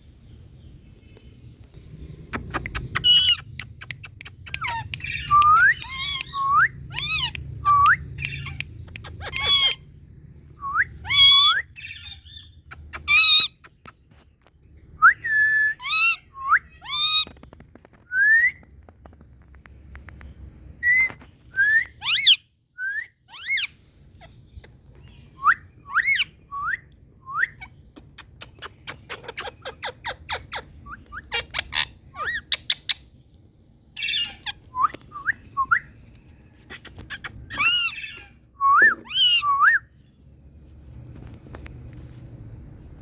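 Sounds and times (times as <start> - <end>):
parrot squawking and whistling: 2.4 - 9.9, 10.6 - 13.7, 15.1 - 17.4, 20.8 - 24.3, 25.4 - 33.0, 34.0 - 35.9, 36.7 - 39.9.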